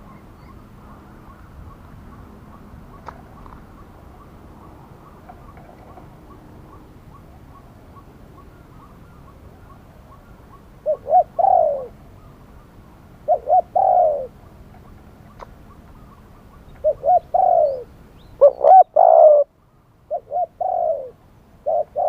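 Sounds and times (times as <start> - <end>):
dove cooing: 3.3 - 12.4, 13.2 - 22.0.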